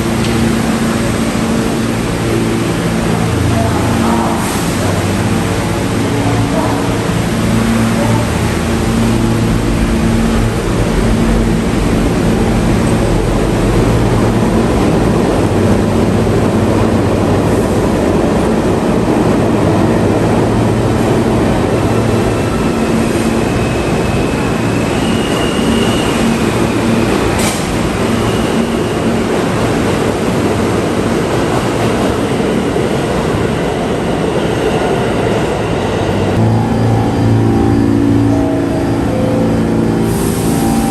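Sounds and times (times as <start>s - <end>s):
subway train rumbling: 0.0s - 40.9s
high wheel squeal: 22.3s - 29.1s.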